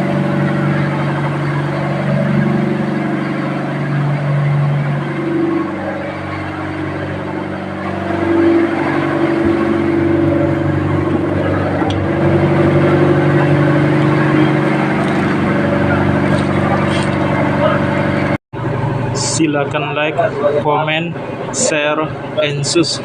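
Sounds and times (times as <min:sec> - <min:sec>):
ship engine droning: 0:00.0 - 0:23.0.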